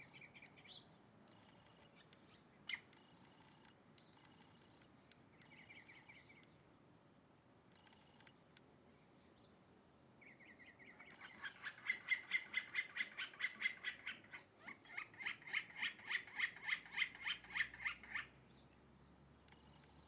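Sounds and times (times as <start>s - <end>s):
bird harsh repeated calls: 10.7s - 18.4s.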